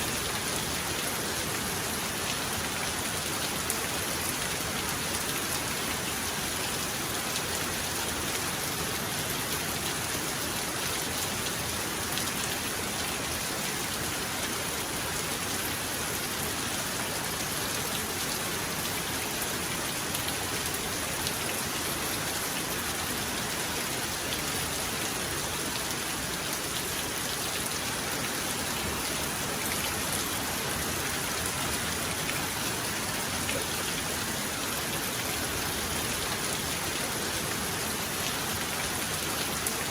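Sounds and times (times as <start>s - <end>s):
heavy rain hissing: 24.1s - 39.9s.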